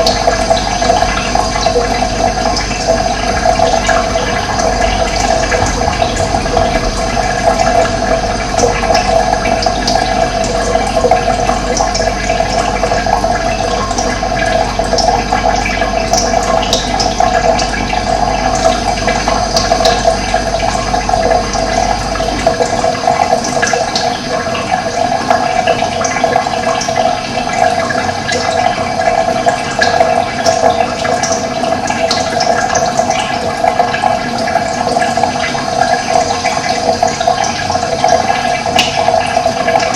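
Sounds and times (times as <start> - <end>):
running water rushing: 0.0 - 39.9
low rumble: 1.3 - 13.4.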